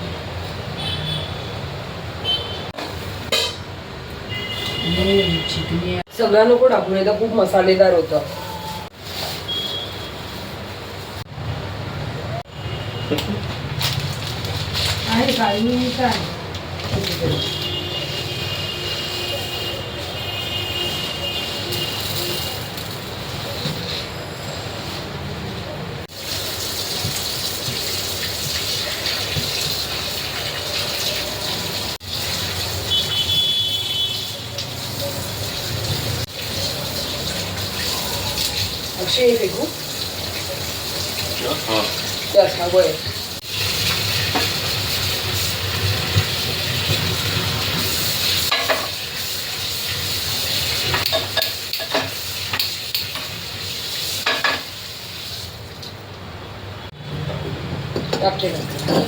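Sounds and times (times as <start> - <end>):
food sizzling in a pan: 26.1 - 33.4, 34.0 - 55.7
running water from tap: 26.1 - 55.9, 58.2 - 59.0.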